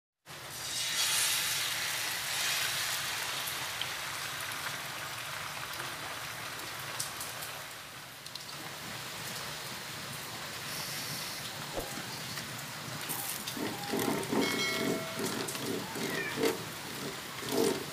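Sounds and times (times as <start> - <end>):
egg sizzling in a pan: 0.3 - 5.4.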